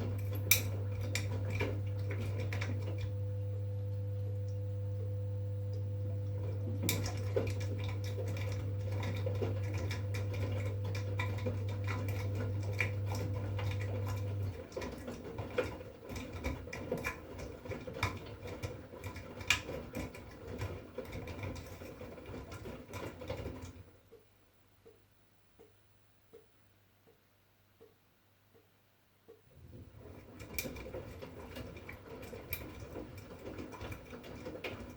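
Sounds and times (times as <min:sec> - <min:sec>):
washing machine humming: 0:00.0 - 0:24.3, 0:29.4 - 0:34.9
washing machine drum pattering: 0:06.4 - 0:23.8, 0:29.6 - 0:34.9.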